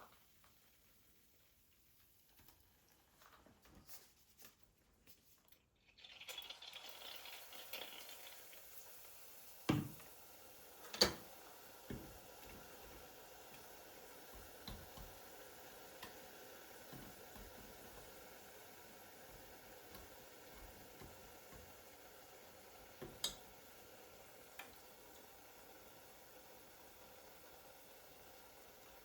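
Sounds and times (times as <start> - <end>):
faint steady hiss: 0.0 - 29.0.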